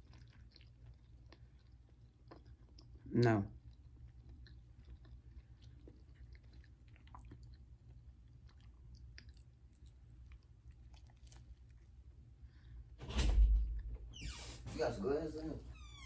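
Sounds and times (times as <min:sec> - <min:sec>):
person chewing food: 0:00.0 - 0:12.8.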